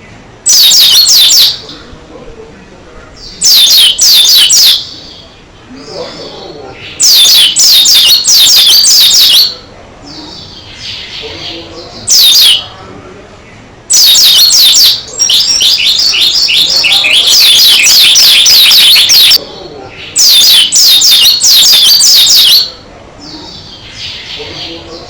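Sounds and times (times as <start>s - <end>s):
bird twittering: 0.0s - 2.0s, 3.0s - 25.0s.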